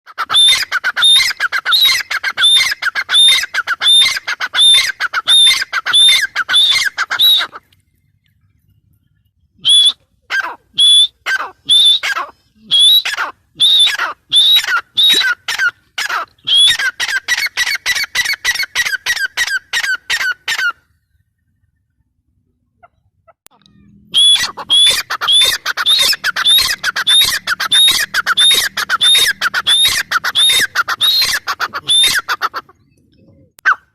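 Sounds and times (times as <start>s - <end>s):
bird calling harsh high notes: 23.6s - 32.7s.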